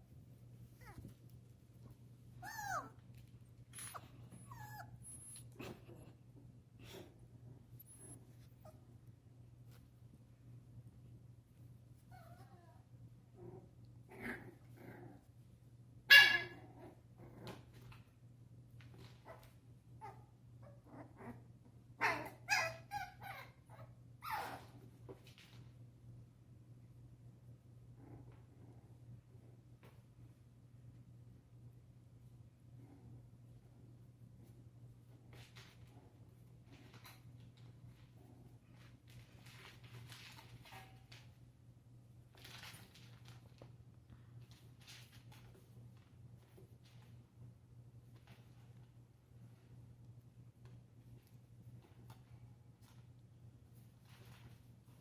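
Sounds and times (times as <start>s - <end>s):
faint steady hum: 0.0s - 55.0s
puppies whimpering: 2.4s - 2.9s, 3.8s - 5.6s.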